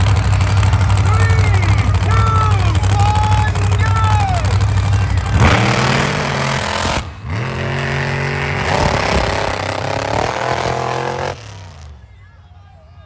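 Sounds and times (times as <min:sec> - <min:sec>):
truck engine revving: 0:00.0 - 0:12.1.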